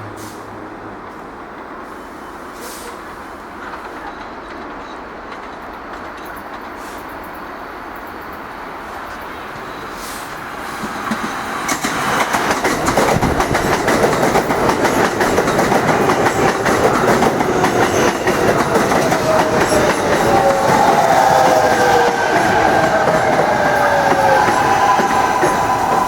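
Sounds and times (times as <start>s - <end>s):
subway train rolling in: 0.0s - 26.0s
wheels clattering over rail joints: 10.9s - 21.0s.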